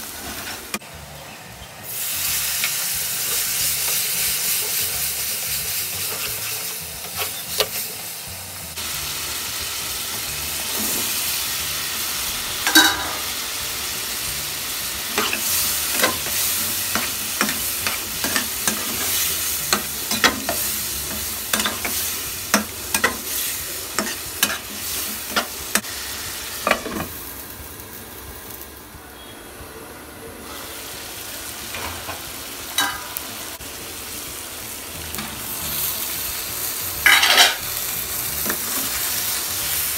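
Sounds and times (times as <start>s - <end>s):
food sizzling in oil: 1.7s - 29.6s, 30.4s - 39.9s
metal spatula scraping and clinking: 15.2s - 25.8s, 37.0s - 37.6s.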